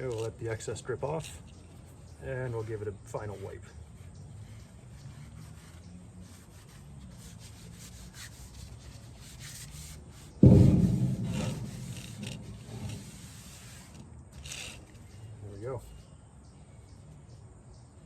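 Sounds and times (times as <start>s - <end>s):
rag rubbing wooden handle: 2.3s - 14.0s
heavy thump: 10.4s - 13.5s.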